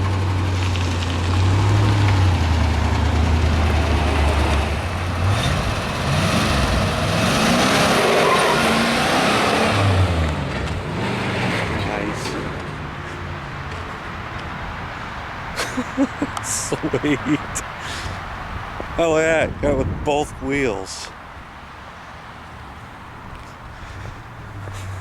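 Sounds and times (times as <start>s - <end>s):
truck engine revving: 0.0s - 14.6s.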